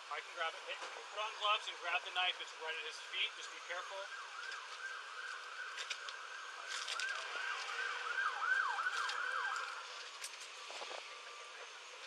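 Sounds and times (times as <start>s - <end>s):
siren yelping: 3.2s - 10.0s.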